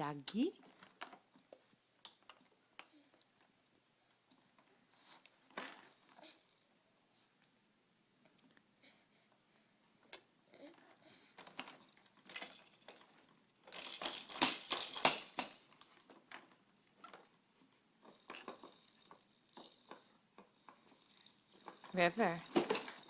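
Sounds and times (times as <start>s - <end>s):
toy rattle shaking: 5.8s - 6.7s, 12.4s - 16.0s, 18.1s - 23.0s.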